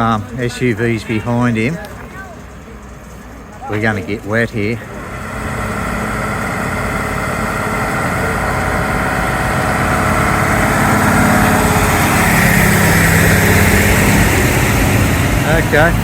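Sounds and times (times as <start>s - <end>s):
vehicle engine running: 0.0s - 16.0s
water rushing: 4.0s - 16.0s.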